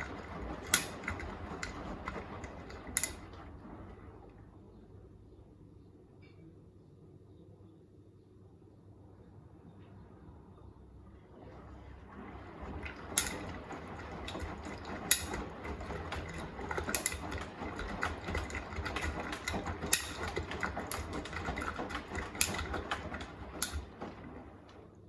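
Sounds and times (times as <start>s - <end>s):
washing machine drum rumbling: 0.0s - 5.2s, 11.0s - 25.0s.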